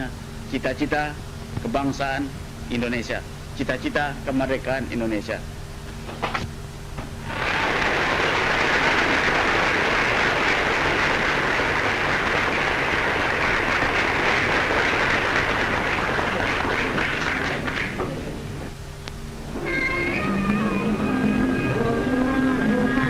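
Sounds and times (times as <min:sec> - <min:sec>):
audience applauding: 0:07.2 - 0:18.1.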